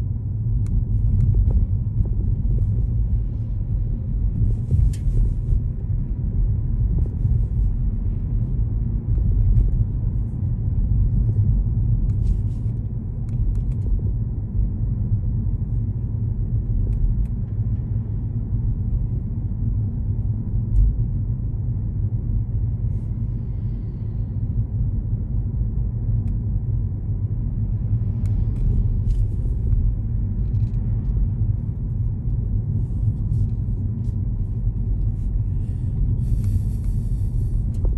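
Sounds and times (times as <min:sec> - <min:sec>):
car road and engine rumble: 0:00.0 - 0:37.9.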